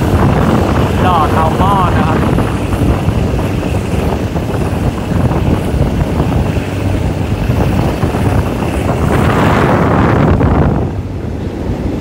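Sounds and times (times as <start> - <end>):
train wheels on rails: 0.0 - 12.0
wind buffeting microphone: 0.0 - 12.0.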